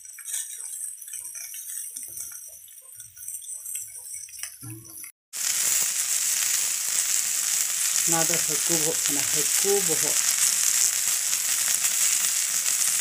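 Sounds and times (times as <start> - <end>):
fish frying in oil: 0.0 - 13.0.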